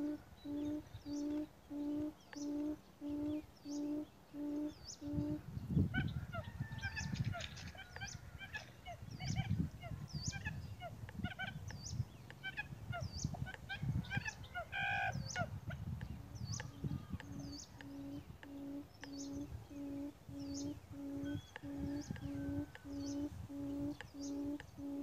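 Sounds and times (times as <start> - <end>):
quail hooting call: 0.0 - 11.6, 12.4 - 15.8, 16.6 - 25.0
small birds chirping: 0.0 - 25.0
gusty low rumbling: 15.1 - 24.9.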